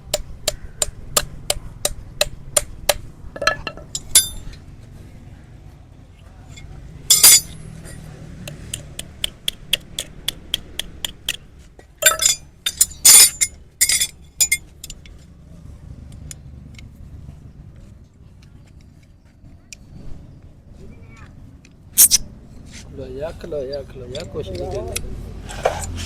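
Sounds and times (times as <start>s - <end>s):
metal tools clinking: 3.4s - 4.6s, 6.5s - 8.1s, 12.0s - 15.2s, 22.0s - 22.2s.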